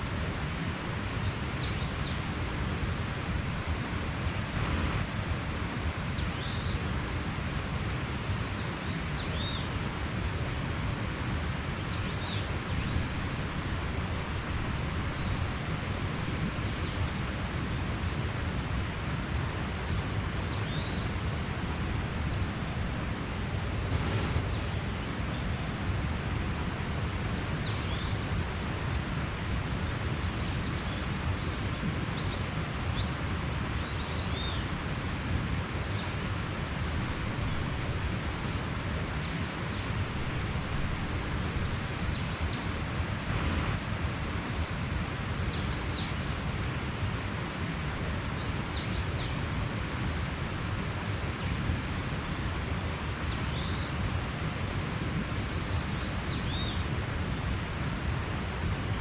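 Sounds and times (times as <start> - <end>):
mountain stream flowing: 0.0 - 59.0
birds chirping: 21.8 - 25.8.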